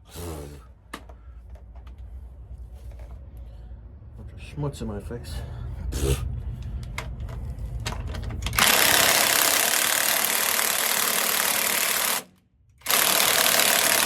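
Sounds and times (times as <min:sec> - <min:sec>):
impact wrench hammering: 0:08.5 - 0:14.0.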